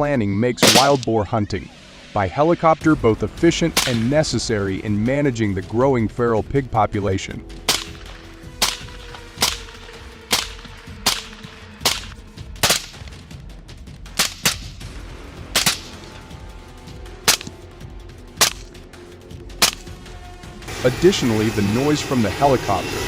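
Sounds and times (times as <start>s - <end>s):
rifle shots: 0.6s - 1.1s, 3.7s - 4.2s, 7.7s - 13.2s, 14.1s - 14.9s, 15.5s - 16.3s, 17.2s - 17.6s, 18.4s - 18.8s, 19.6s - 20.0s.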